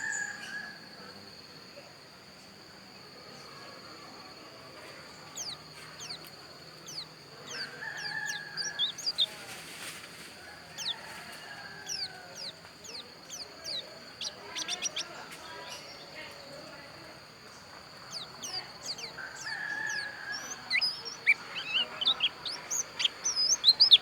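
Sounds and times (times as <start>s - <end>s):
rooster crowing: 0.0s - 0.8s, 6.9s - 9.7s, 10.3s - 15.9s, 18.1s - 24.0s
bird high thin chirps: 5.3s - 9.6s, 10.7s - 16.0s, 18.0s - 24.0s.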